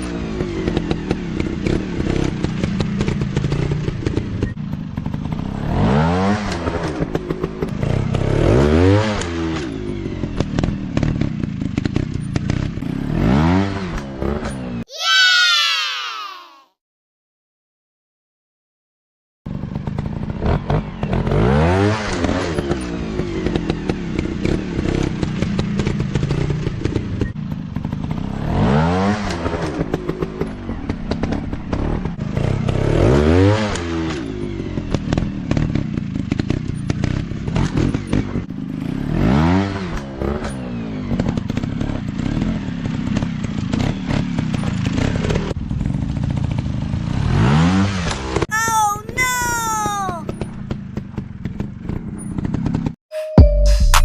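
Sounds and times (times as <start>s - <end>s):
dirt bike engine revving: 5.0s - 14.6s, 31.1s - 48.4s.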